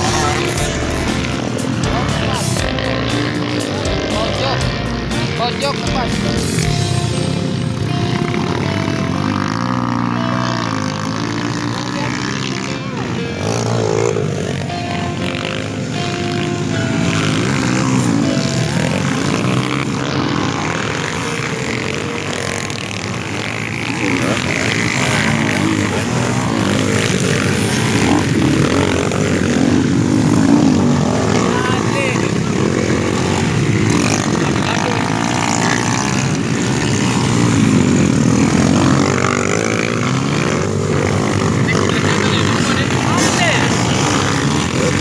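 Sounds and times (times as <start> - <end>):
motorcycle engines revving: 0.0 - 45.0.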